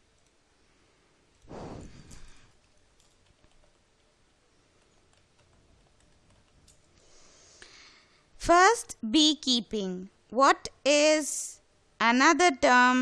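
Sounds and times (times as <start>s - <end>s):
soft hiss: 0.0s - 3.0s, 6.6s - 8.5s.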